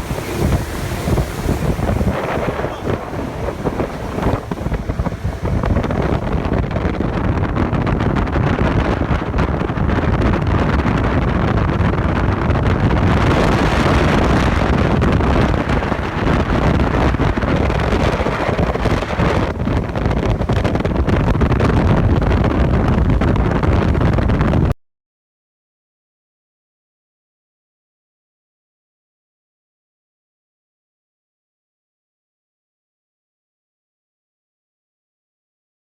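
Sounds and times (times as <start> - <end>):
speedboat engine running: 0.0 - 24.7
wind buffeting microphone: 0.0 - 24.8.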